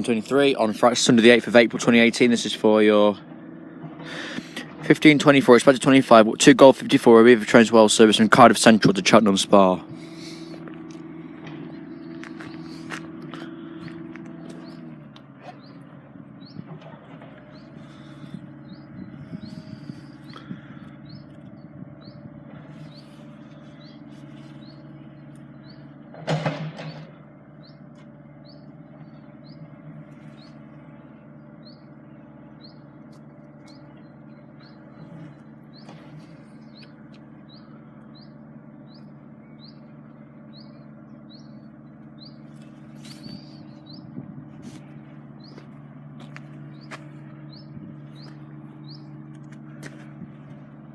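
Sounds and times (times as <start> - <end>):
steady low hum: 0.0 - 50.9
small bird chirping: 13.7 - 16.8, 17.4 - 26.0, 26.8 - 45.9, 46.5 - 50.6.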